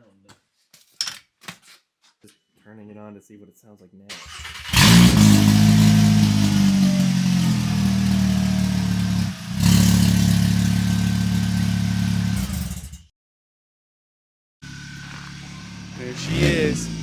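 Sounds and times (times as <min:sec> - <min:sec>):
car engine running: 0:04.8 - 0:12.7, 0:14.6 - 0:17.0.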